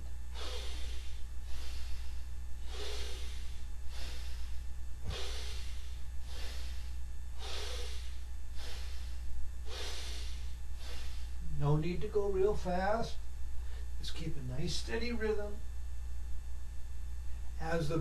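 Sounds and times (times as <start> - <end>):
person breathing deeply: 0.0 - 11.6, 13.6 - 14.0
low hum: 0.0 - 18.0.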